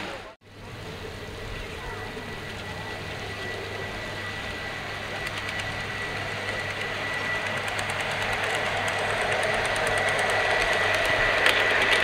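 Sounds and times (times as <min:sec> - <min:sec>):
rail vehicle whine and hum: 0:00.0 - 0:12.0
wheels ticking: 0:05.2 - 0:12.0.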